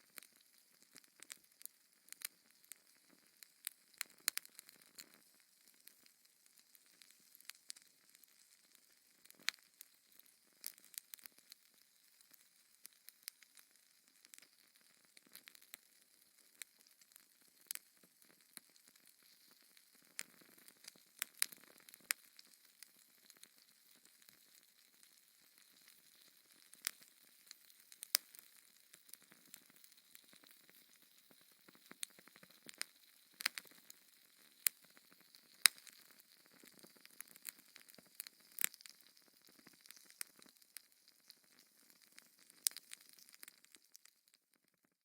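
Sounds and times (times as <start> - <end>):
wood fire crackling: 0.0 - 44.6.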